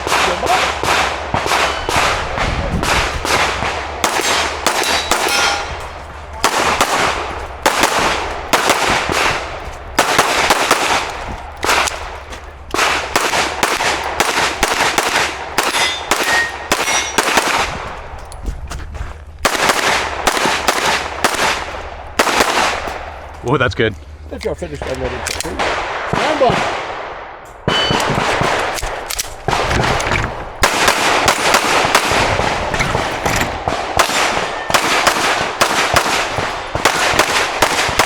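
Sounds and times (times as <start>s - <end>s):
handgun shots echoing: 0.0s - 17.8s, 27.6s - 38.0s
steel targets ringing: 1.5s - 2.2s, 4.1s - 7.4s, 15.6s - 17.4s, 27.7s - 28.2s, 31.3s - 35.2s.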